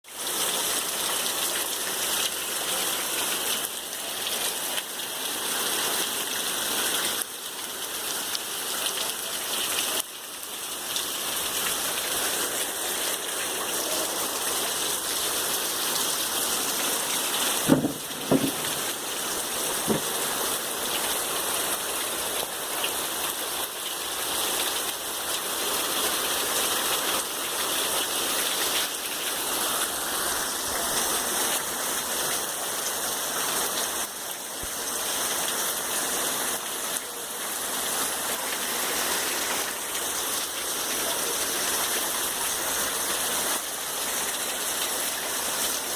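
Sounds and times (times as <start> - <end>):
heavy rain hissing: 0.1 - 45.9
brief knocks: 17.7 - 18.9, 19.9 - 20.2.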